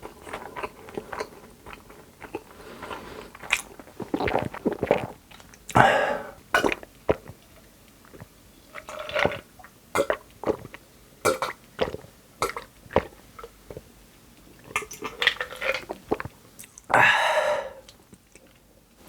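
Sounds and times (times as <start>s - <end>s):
mouth smacking and chewing: 0.0s - 5.8s, 6.6s - 8.3s, 10.0s - 13.9s.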